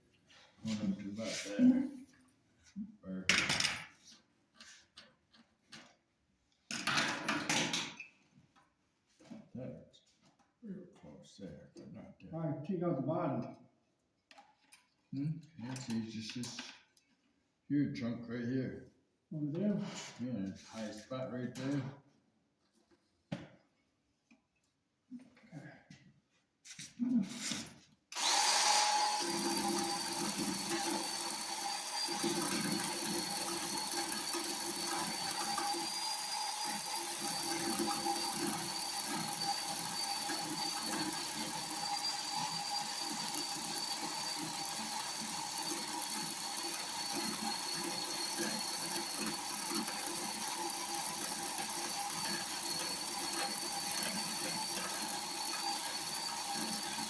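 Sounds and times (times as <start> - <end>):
electric chainsaw cutting log: 28.1 - 57.0.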